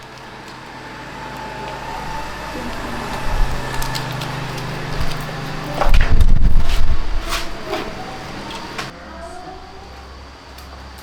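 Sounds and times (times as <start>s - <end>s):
low mechanical hum: 0.0s - 11.0s
low rumble: 1.8s - 8.9s.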